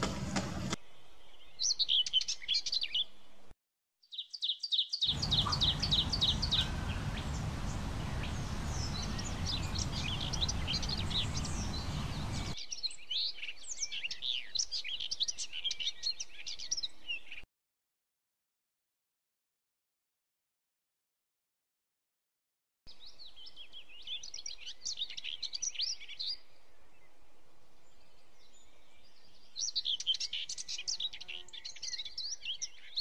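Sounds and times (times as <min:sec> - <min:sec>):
small birds chirping: 0:00.6 - 0:03.3, 0:04.0 - 0:17.4, 0:22.9 - 0:27.1, 0:27.8 - 0:33.0
steady low noise: 0:05.1 - 0:12.6.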